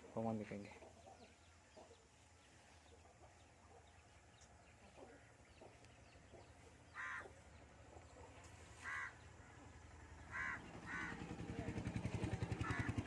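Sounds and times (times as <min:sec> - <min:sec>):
chicken calls: 0:04.7 - 0:09.4.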